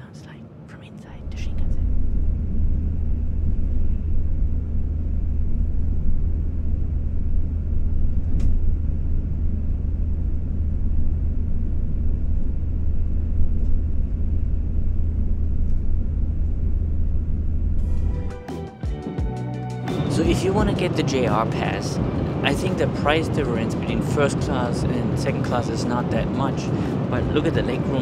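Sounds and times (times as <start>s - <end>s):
train cabin rumble and hiss: 19.9s - 28.0s.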